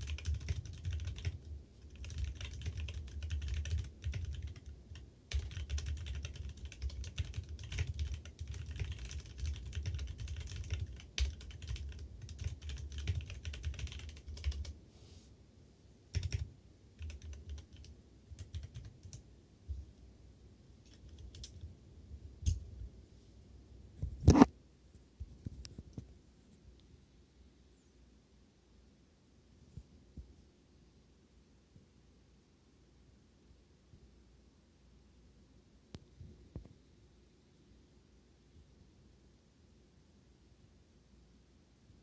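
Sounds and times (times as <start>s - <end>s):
typing on mechanical keyboard: 0.0s - 14.7s, 16.1s - 19.2s, 20.9s - 21.6s.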